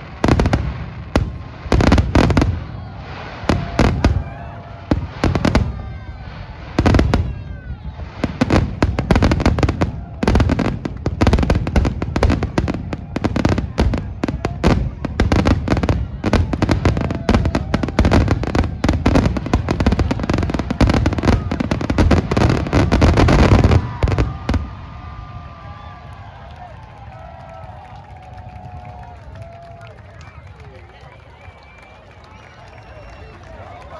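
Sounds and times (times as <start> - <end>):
fireworks bursting and crackling: 0.0 - 30.5
crowd cheering: 0.0 - 33.9
whistles: 29.0 - 33.9.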